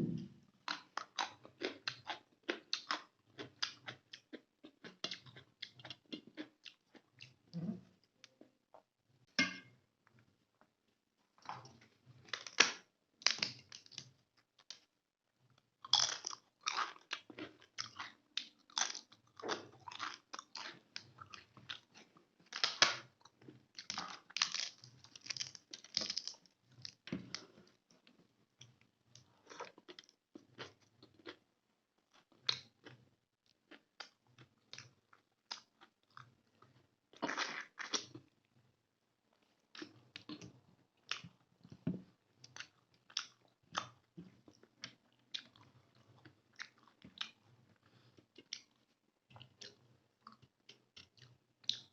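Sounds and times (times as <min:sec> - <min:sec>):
person chewing food: 0:00.2 - 0:07.4, 0:15.8 - 0:31.4, 0:39.7 - 0:51.9.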